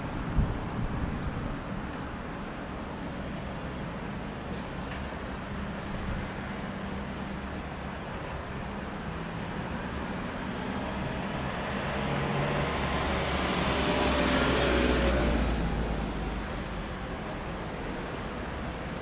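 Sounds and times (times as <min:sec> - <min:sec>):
wheels rumbling on rails: 0:00.0 - 0:19.0.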